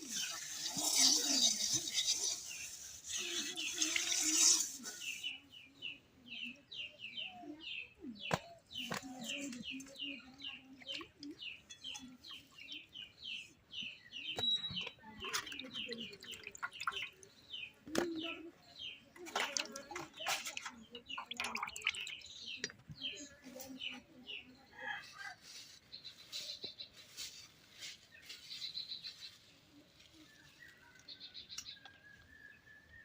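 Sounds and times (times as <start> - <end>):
bird chirping: 0.1 - 19.1, 25.8 - 33.0.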